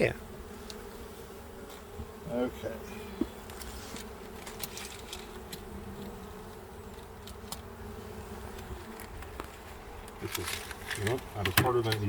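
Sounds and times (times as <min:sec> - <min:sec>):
bees buzzing: 0:00.0 - 0:12.0
faint ticks: 0:00.6 - 0:00.8.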